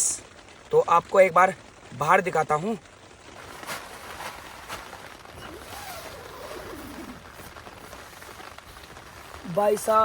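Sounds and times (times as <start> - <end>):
steady rain falling: 0.0 - 10.0.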